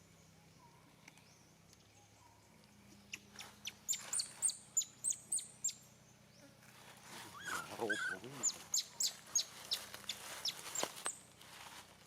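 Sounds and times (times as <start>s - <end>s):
high-pitched chirping calls: 7.3s - 10.9s.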